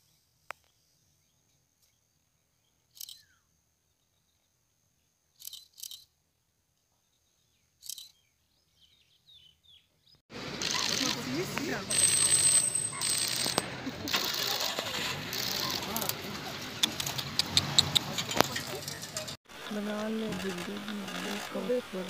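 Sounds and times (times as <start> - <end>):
quick bird chirps: 10.6 - 19.3.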